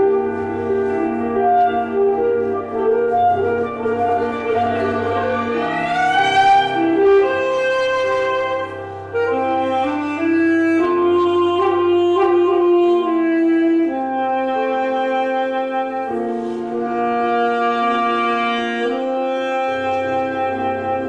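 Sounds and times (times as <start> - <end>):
musical accompaniment: 0.0 - 21.0
saxophone melody: 0.0 - 21.0.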